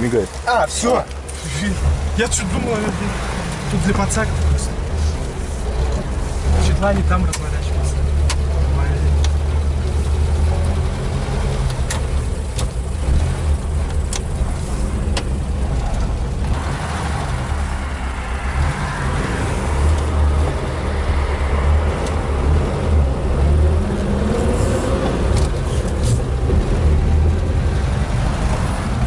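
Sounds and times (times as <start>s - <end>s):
car engine droning: 0.0s - 29.0s
sharp clicks: 13.8s - 14.3s.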